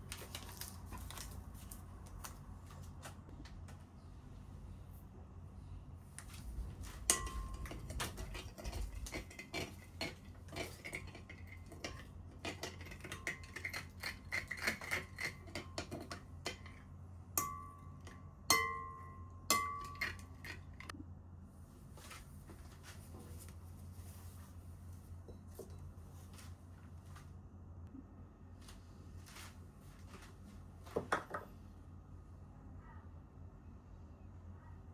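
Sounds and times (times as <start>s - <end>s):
utensil clinking against a bowl: 7.0s - 20.9s
sharp ringing strikes: 17.4s - 20.0s.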